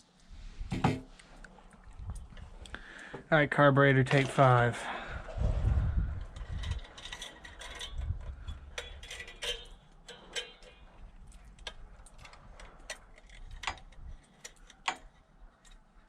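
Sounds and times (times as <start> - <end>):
small metal parts clicking: 6.4 - 16.0.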